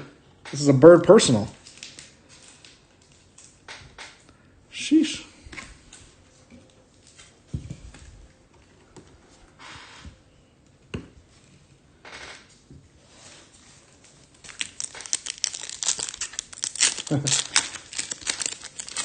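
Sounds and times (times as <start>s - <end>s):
foil wrapper crinkling: 14.1s - 19.0s.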